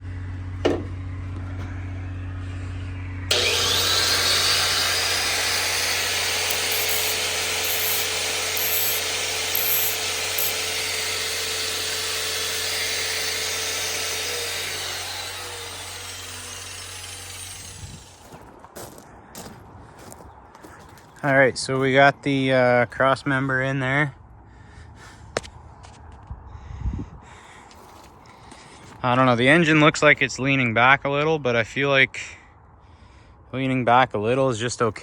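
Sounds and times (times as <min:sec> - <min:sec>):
steady low hum: 0:00.0 - 0:18.2
power tool grinding whine: 0:03.3 - 0:18.4.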